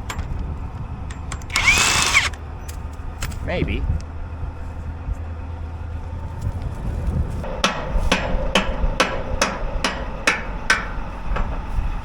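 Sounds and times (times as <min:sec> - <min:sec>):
hammer striking steel: 0:07.5 - 0:11.0.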